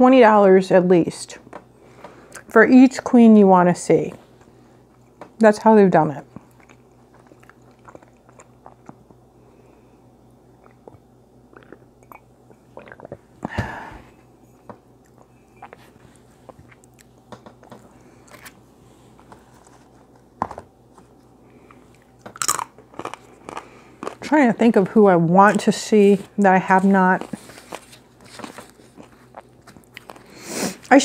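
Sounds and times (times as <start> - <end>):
person chewing food: 6.3 - 13.5, 14.5 - 20.3, 20.9 - 24.3, 26.2 - 30.9
wet mouth clicks: 10.6 - 13.2.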